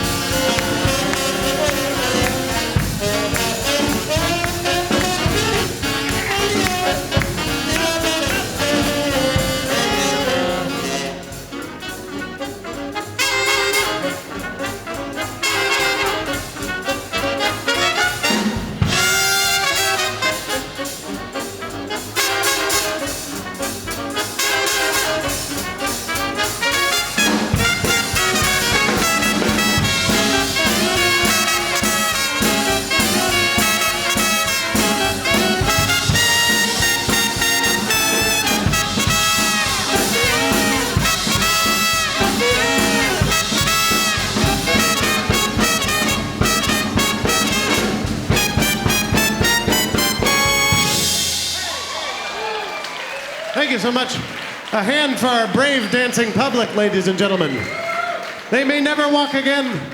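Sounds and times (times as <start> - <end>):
bass and drums: 0.0 - 52.4
trumpets and trombones: 0.0 - 55.2
swing big band playing: 0.0 - 59.9.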